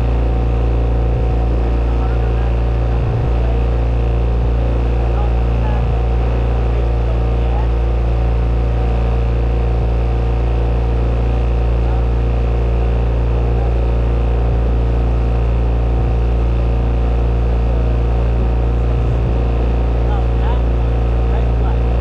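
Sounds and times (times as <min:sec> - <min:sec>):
motorboat engine droning: 0:00.0 - 0:22.0.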